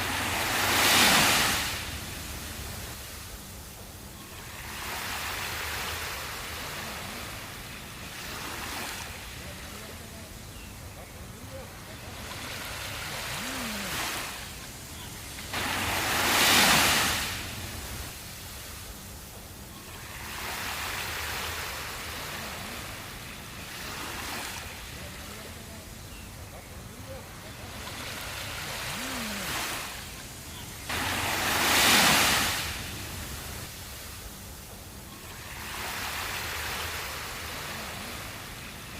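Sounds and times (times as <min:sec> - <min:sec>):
waves washing onto beach: 0:00.0 - 0:38.9.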